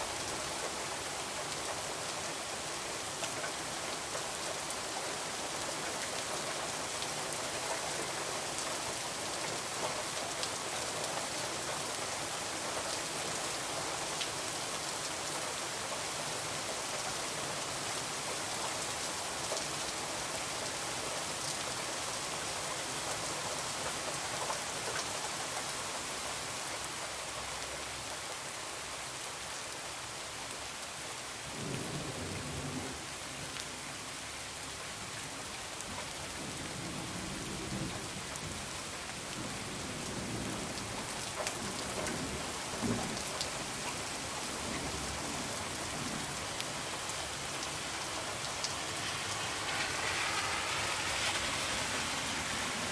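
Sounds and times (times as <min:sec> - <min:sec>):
heavy rain falling: 0:00.0 - 0:52.9
low rumble of thunder: 0:31.5 - 0:33.0.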